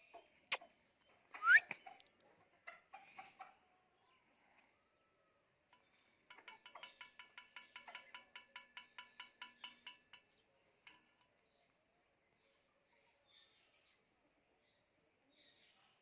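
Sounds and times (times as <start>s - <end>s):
bird ringing metallic call: 5.8s - 11.3s.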